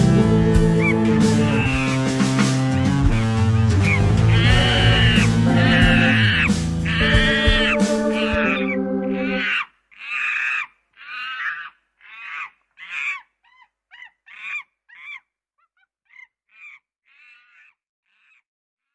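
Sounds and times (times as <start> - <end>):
music: 0.0 - 9.4
bird calling: 0.6 - 18.9.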